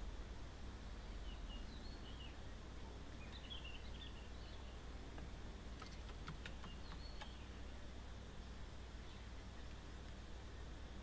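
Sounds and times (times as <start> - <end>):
low outdoor background rumble: 0.0 - 11.0
faint bird chirps: 0.8 - 5.0, 5.7 - 11.0
sharp clicks: 5.2 - 7.4.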